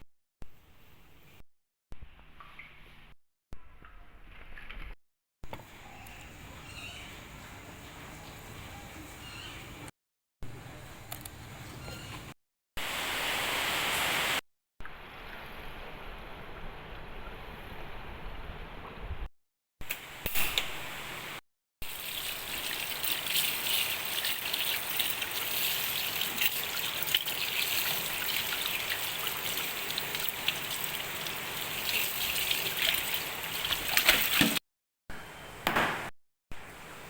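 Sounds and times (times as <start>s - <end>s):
water running and splashing: 21.8s - 34.6s.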